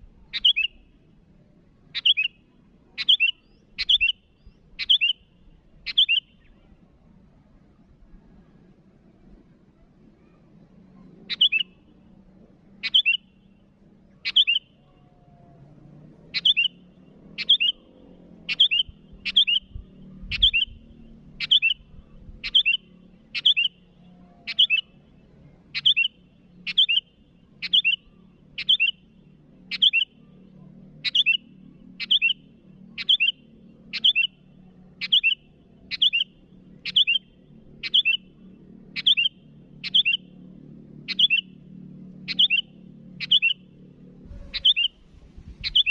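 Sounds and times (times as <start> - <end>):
bulbul short sharp calls: 42.3 - 43.6, 44.2 - 45.9.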